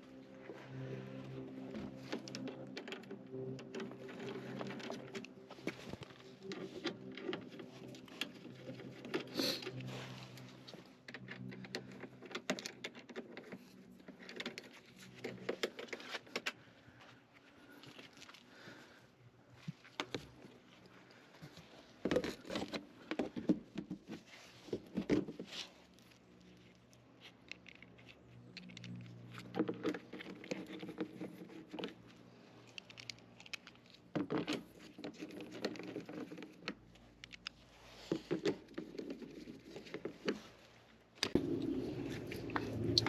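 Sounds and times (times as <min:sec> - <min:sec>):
small hard objects clicking and tapping: 0:26.0 - 0:37.6.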